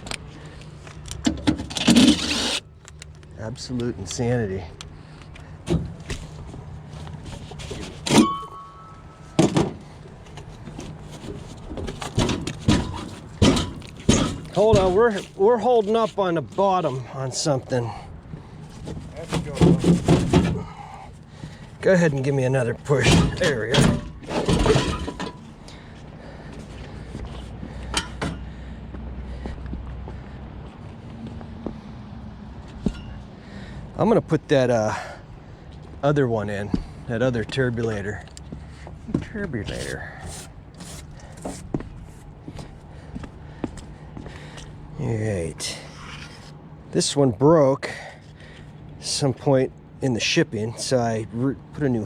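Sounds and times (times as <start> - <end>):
low steady hum: 0.0 - 29.0
metal scraping: 1.5 - 2.7, 22.9 - 25.5
metallic ring: 8.1 - 9.4
sharp metal clanks: 8.1 - 9.8
sharp knocks and clanks: 8.1 - 9.9, 11.2 - 15.2, 18.9 - 20.7, 27.9 - 28.5.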